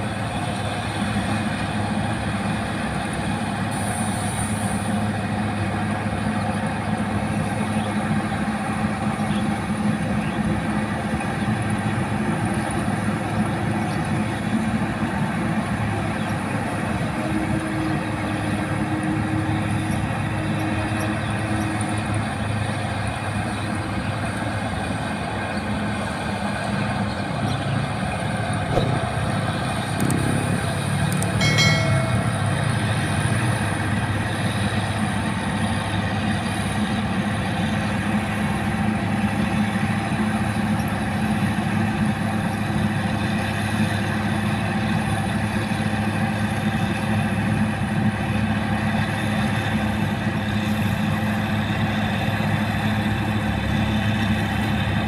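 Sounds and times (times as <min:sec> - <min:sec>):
combine harvester engine drone: 0:00.0 - 0:55.0
high-pitched tone: 0:31.4 - 0:33.0.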